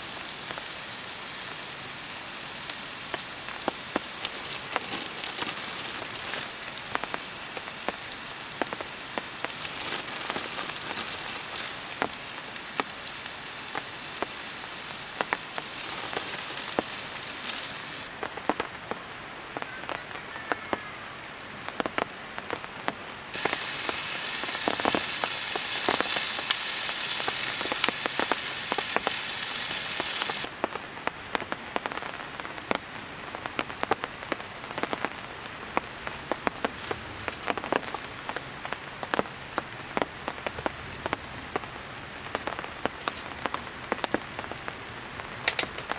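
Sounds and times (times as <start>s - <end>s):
food sizzling in a hot pan: 0.0s - 18.1s, 23.3s - 30.5s.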